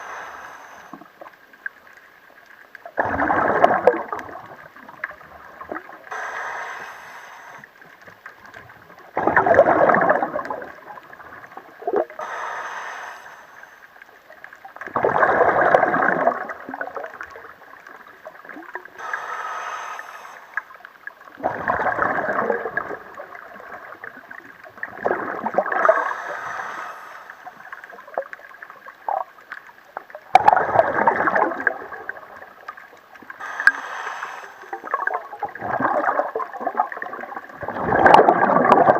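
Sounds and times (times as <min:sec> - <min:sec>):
hissing regulator inhale: 0:00.0 - 0:01.1, 0:06.1 - 0:07.8, 0:12.2 - 0:14.0, 0:19.0 - 0:20.8, 0:25.8 - 0:28.0, 0:33.4 - 0:35.0
exhaled bubbles underwater: 0:00.0 - 0:06.3, 0:07.4 - 0:12.4, 0:13.9 - 0:19.2, 0:20.6 - 0:38.9.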